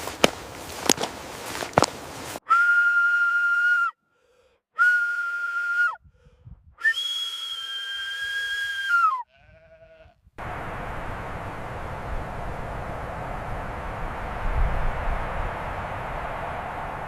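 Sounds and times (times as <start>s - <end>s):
footsteps: 0.0s - 2.4s
long whistled notes: 2.4s - 4.0s, 4.8s - 6.0s, 6.8s - 9.2s.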